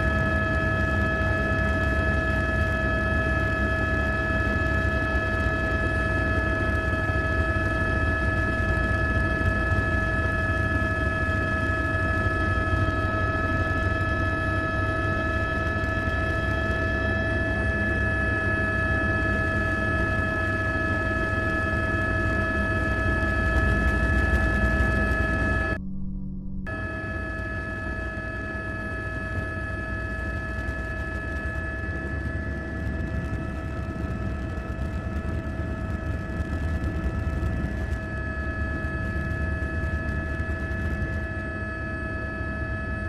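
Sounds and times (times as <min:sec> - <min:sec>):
drone propellers whining: 0:19.5 - 0:41.6
low rumble: 0:24.4 - 0:26.7.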